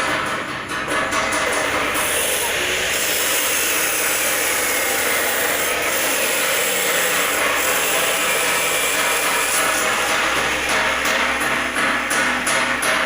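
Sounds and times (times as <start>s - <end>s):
steam escaping from boiler: 1.5s - 11.6s.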